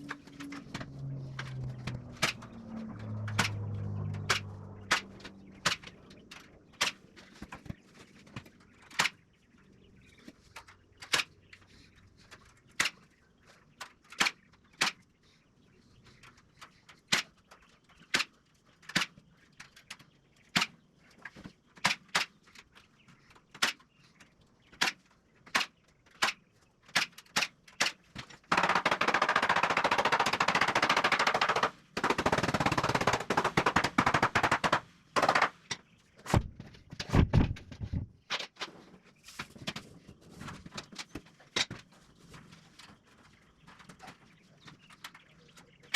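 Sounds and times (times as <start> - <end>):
nail gun firing: 24.8 - 36.5.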